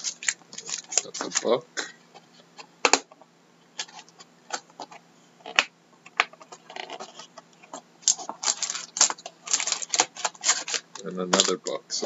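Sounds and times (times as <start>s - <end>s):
wrapper crinkling: 0.0s - 1.6s, 8.0s - 11.8s.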